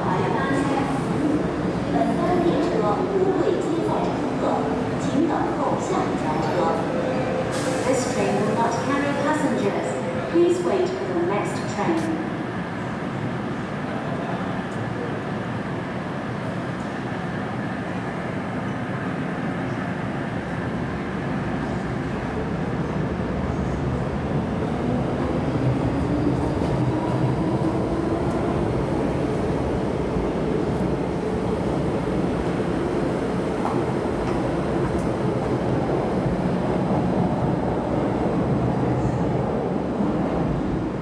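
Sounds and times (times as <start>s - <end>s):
metro train rumbling: 0.0s - 41.0s.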